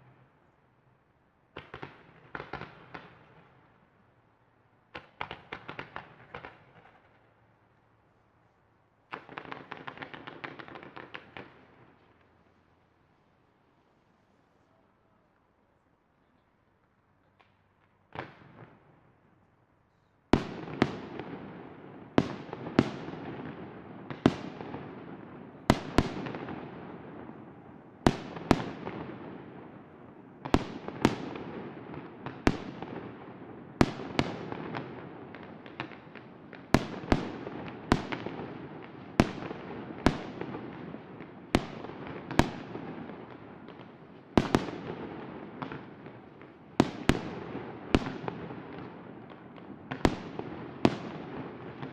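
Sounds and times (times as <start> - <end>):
fireworks rumble and crackle: 0.0 - 51.9
fireworks bangs: 20.4 - 51.9.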